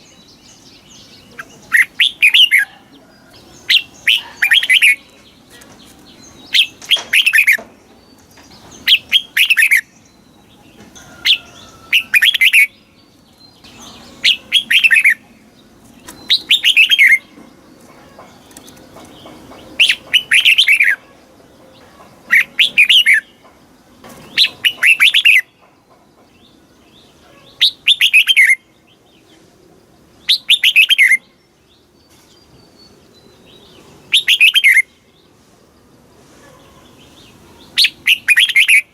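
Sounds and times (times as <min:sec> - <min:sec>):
bird singing descending phrases: 0:00.0 - 0:29.4, 0:30.0 - 0:35.4.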